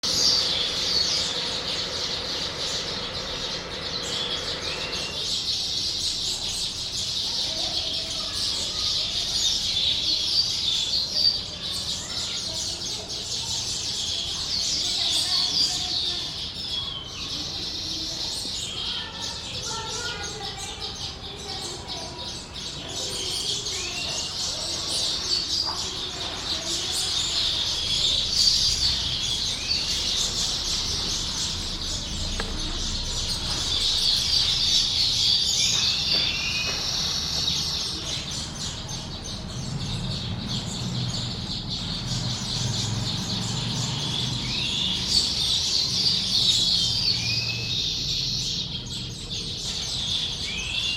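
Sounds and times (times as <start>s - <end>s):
birds twittering: 0.0s - 50.9s.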